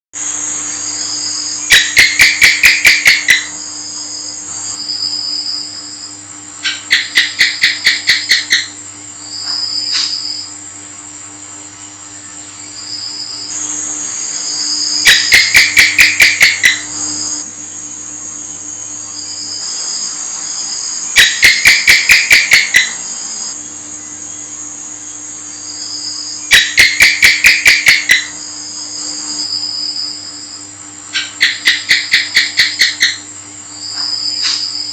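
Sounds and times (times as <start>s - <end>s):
high-pitched insect drone: 0.2s - 10.6s, 11.5s - 34.9s
gecko chirping: 1.1s - 4.2s, 4.8s - 8.8s, 12.8s - 17.4s, 20.6s - 23.5s, 25.8s - 28.4s, 31.1s - 33.2s.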